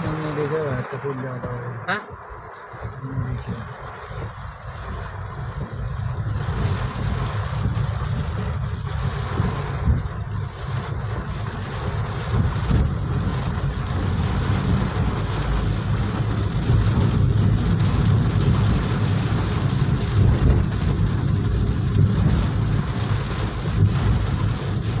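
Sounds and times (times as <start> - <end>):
heavy rain falling: 0.0 - 25.0
wind buffeting microphone: 1.5 - 25.0.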